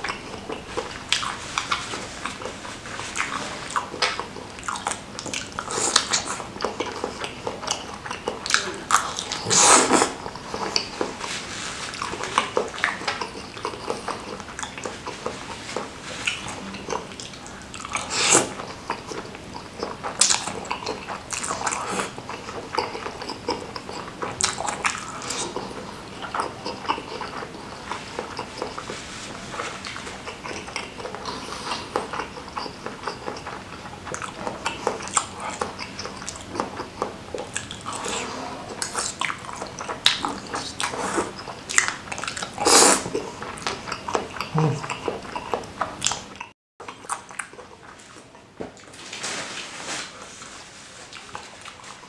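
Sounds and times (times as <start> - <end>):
person chewing with wet smacking: 0.0 - 49.0, 50.4 - 52.0
loud long mouth sounds: 8.5 - 11.3, 34.5 - 46.2.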